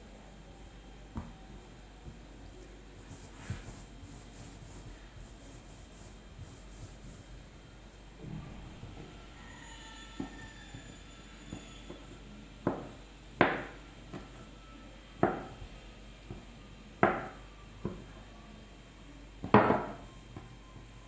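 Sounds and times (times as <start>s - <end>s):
kitchen tool knocking on hard surface: 19.5s - 20.0s.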